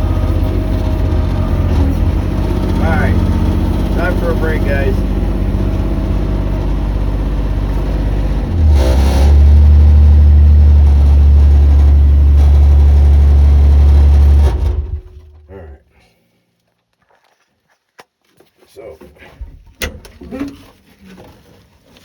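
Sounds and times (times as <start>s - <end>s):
excavator engine running: 0.0s - 15.8s.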